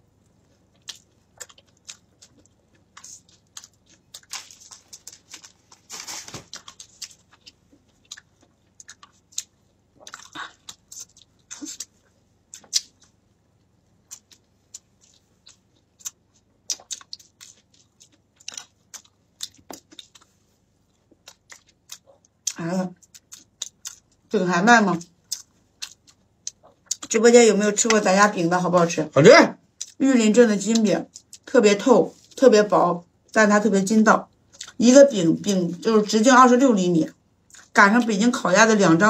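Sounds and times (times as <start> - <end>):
person chewing food: 0.1 - 24.3, 24.9 - 27.2, 29.8 - 30.0, 31.1 - 31.5, 34.4 - 34.8, 37.4 - 37.7.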